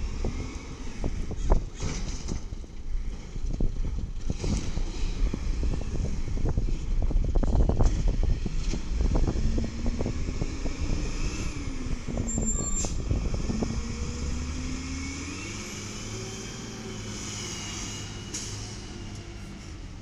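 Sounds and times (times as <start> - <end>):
diesel truck engine pulling away: 0.0 - 20.0.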